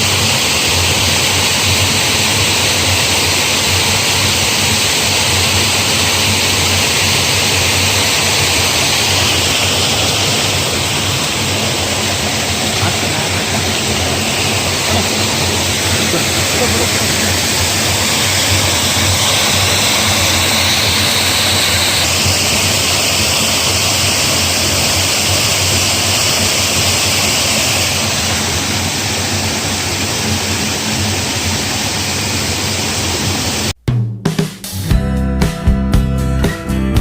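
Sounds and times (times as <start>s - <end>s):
loud rushing noise: 0.0s - 33.8s
guitar music: 34.2s - 37.0s.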